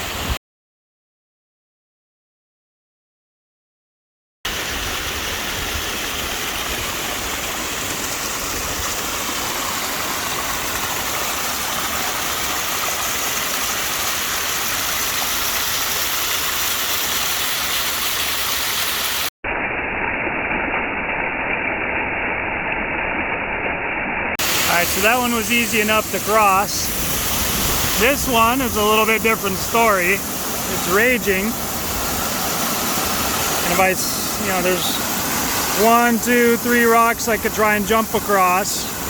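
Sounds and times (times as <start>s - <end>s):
creek rushing over rocks: 4.5s - 19.3s, 24.4s - 39.0s.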